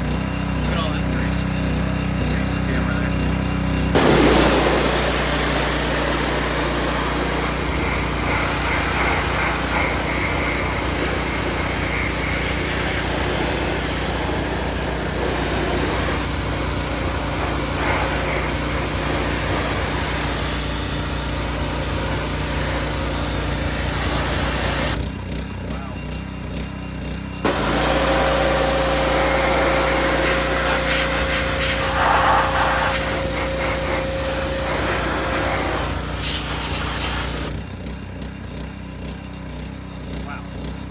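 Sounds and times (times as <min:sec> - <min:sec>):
pressure washer engine drone: 0:00.0 - 0:40.9
high-pressure spray jet hissing: 0:04.0 - 0:25.0, 0:27.5 - 0:37.5.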